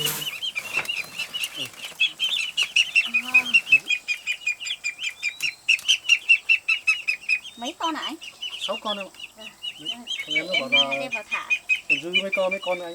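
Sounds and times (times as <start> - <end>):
rustling and scuffling: 0.0 - 3.9
ducklings peeping: 0.0 - 12.9.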